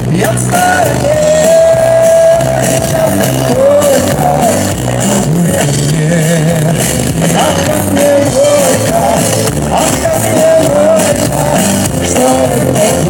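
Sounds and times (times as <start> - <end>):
live pop band playing: 0.0 - 13.0.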